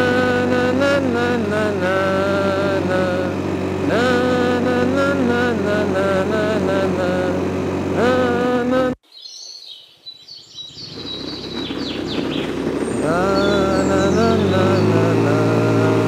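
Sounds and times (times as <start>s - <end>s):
moped engine revving: 0.0s - 9.0s, 10.7s - 16.0s
birds chirping: 9.1s - 15.8s.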